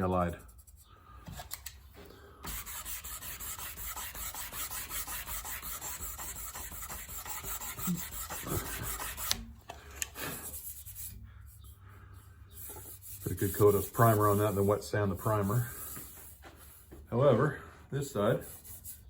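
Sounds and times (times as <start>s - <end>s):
sandpaper rubbing back and forth: 0.0s - 1.0s, 2.4s - 9.4s, 10.2s - 11.8s, 12.5s - 17.0s, 18.0s - 19.0s.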